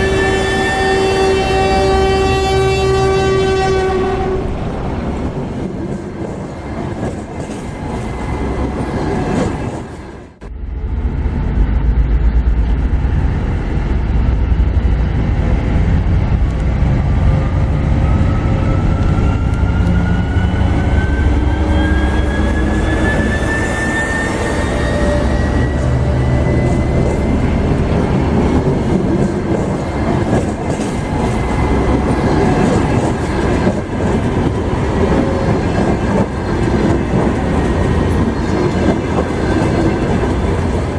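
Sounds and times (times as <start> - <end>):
diesel locomotive engine beat: 0.0 - 40.9
locomotive whine rising in pitch: 15.8 - 28.8.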